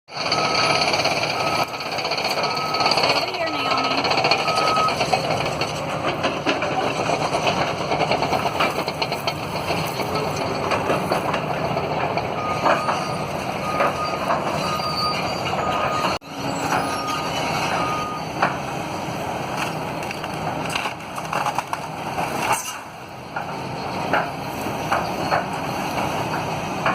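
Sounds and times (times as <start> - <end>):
demolition machinery running: 0.1 - 26.9
backup alarm beeps: 0.3 - 5.0, 12.4 - 16.2, 16.9 - 18.3.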